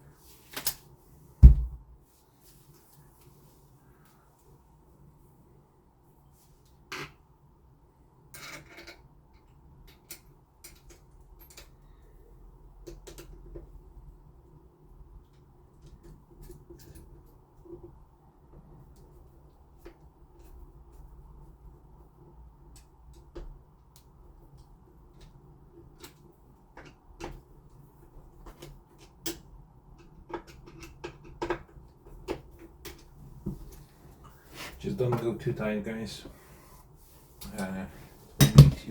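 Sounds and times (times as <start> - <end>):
lock hardware clicks and knocks: 38.4 - 38.9.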